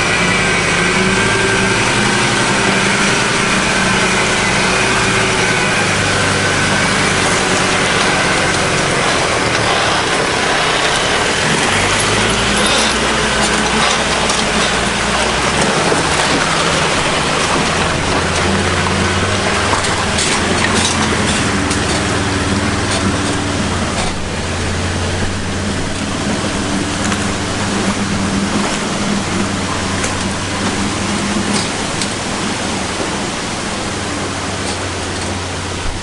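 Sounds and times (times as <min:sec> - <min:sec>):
engine running at low pitch: 0:00.0 - 0:36.0
loud rushing noise: 0:00.0 - 0:36.0.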